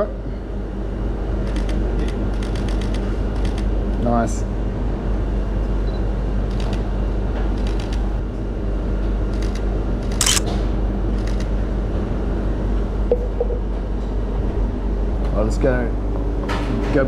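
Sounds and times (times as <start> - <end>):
camera shutter clicking: 10.2 - 10.4.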